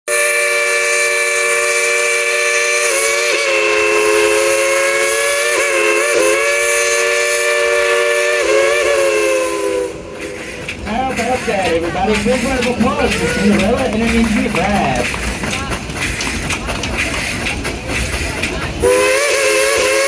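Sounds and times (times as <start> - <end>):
steam locomotive chime whistle: 0.1 - 10.4, 18.8 - 20.0.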